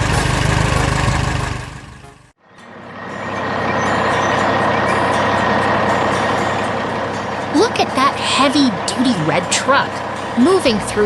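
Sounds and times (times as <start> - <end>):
truck and street traffic: 0.0 - 11.0
vehicle engine rumble: 0.0 - 11.0
steady high tone: 2.4 - 11.0.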